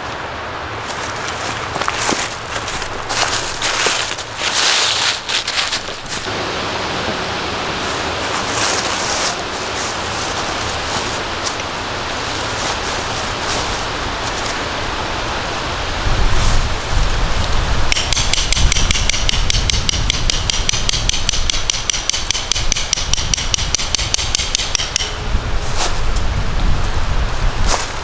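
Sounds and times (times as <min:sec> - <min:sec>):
rustles: 0:00.0 - 0:18.0, 0:24.8 - 0:28.0
steady rushing hiss: 0:00.0 - 0:28.0
knocking: 0:17.9 - 0:25.3.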